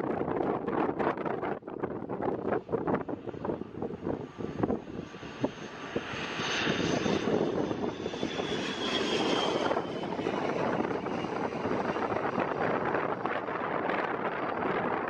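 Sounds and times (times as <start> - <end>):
turboprop airliner engine drone: 0.0 - 15.0
wind buffeting microphone: 0.0 - 15.0.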